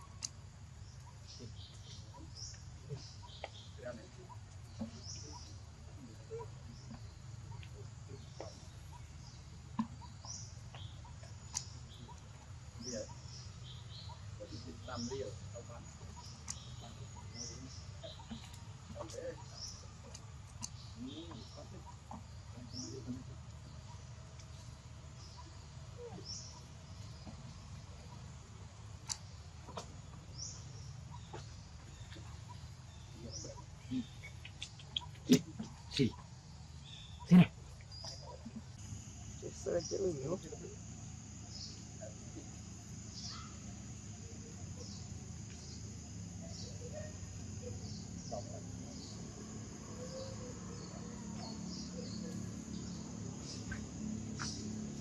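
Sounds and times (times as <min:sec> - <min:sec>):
bird chirping: 0:00.0 - 0:55.0
faint clicks: 0:10.7 - 0:12.2
animal chirps and squeaks: 0:33.4 - 0:36.3.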